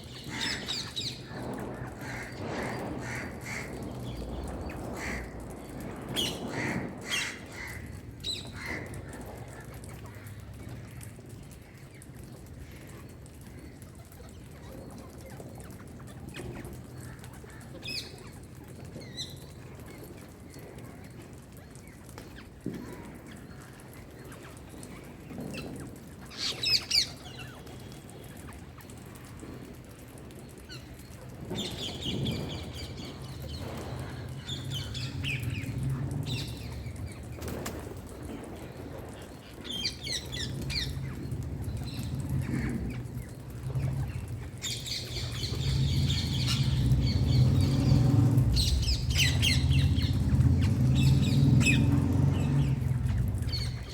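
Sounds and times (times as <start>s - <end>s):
parakeet chirping and squawking: 39.7s - 53.9s.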